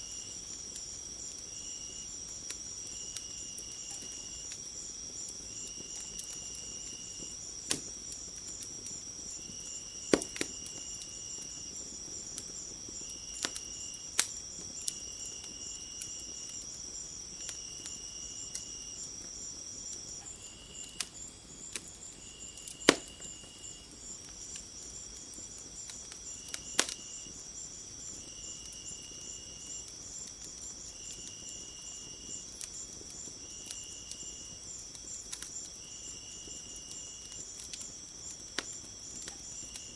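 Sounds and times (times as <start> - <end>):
crickets trilling: 0.0 - 39.9
low insect chirp: 0.0 - 39.9
wood fire crackling: 0.0 - 39.9.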